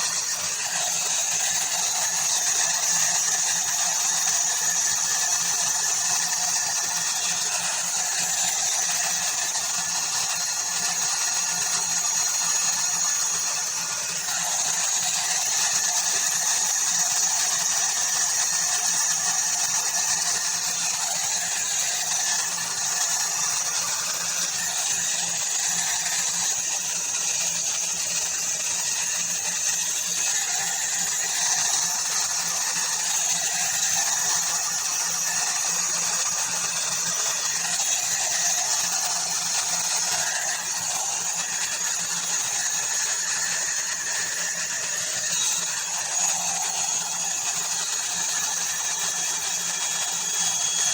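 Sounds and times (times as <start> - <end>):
hot air brush whining: 0.0 - 50.9.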